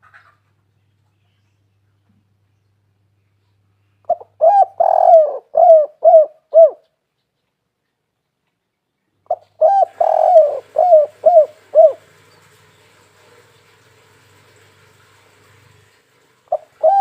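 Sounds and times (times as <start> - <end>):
dove cooing: 4.1 - 7.0, 9.3 - 13.8, 16.4 - 17.0.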